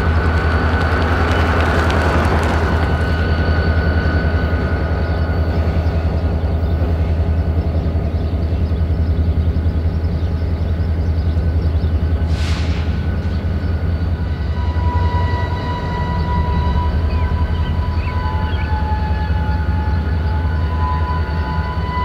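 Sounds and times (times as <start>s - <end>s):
freight train rumbling: 0.0s - 22.0s
brief hiss: 12.3s - 13.1s.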